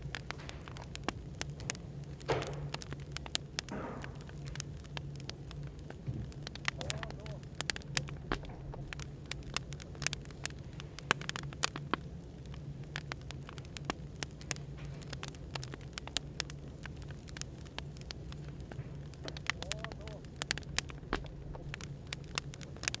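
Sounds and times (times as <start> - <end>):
low cafe hum: 0.0 - 23.0
wood fire crackling: 0.0 - 23.0.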